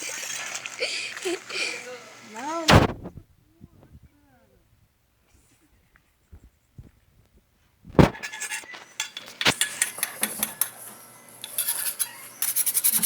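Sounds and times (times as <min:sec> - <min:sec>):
loud knock: 0:02.7 - 0:03.1
dishes and cutlery clinking: 0:08.0 - 0:13.0.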